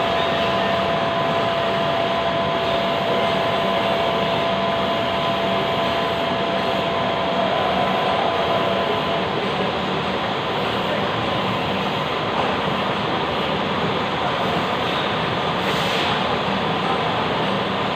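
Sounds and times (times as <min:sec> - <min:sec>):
lathe running: 0:00.0 - 0:11.0
high mechanical whine: 0:00.0 - 0:15.5.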